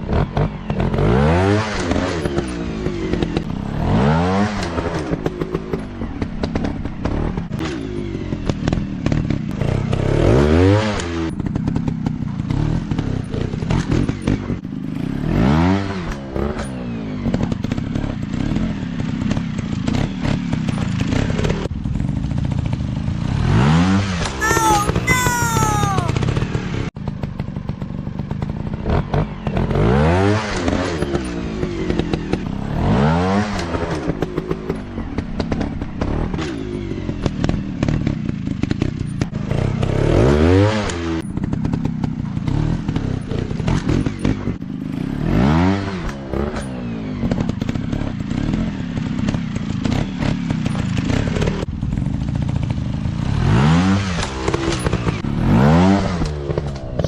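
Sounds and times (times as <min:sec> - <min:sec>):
engine clatter: 0:40.9 - 0:45.0, 0:46.0 - 0:53.3.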